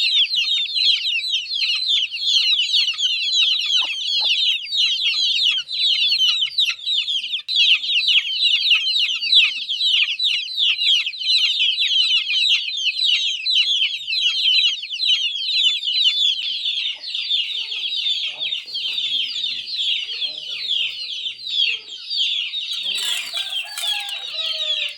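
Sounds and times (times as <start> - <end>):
chicks peeping: 15.4 - 24.9.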